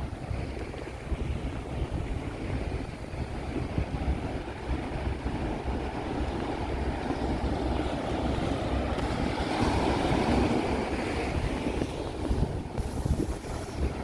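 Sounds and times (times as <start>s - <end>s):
wind rumbling on microphone: 0.0s - 14.0s
surf washing onto sand: 6.6s - 14.0s.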